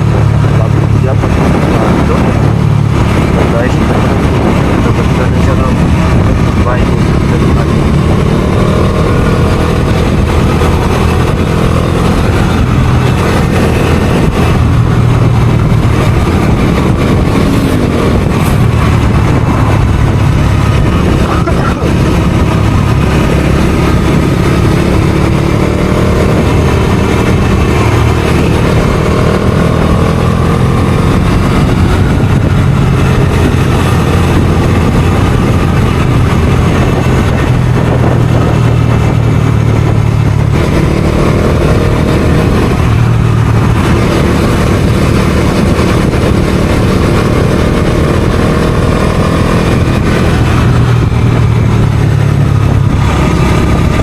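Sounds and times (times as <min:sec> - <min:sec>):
motorcycle engine accelerating: 0:00.0 - 0:54.0
wind noise: 0:00.0 - 0:54.0.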